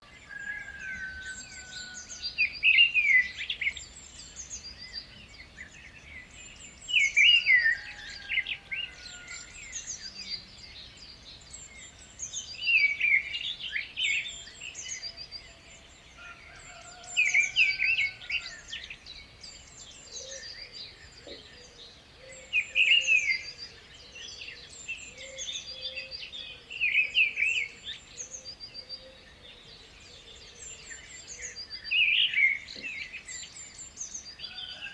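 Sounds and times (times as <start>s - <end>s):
loud bird song phrase: 0.0s - 34.9s
birds chirping: 18.1s - 34.9s.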